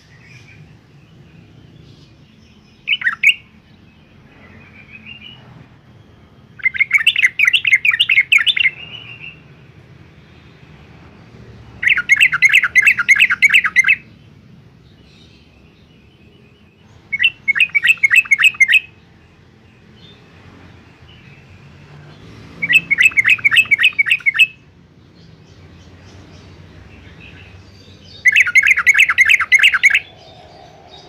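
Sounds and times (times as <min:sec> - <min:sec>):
faint bird calls: 0:27.2 - 0:31.0
bird singing bubbly notes: 0:28.1 - 0:31.0.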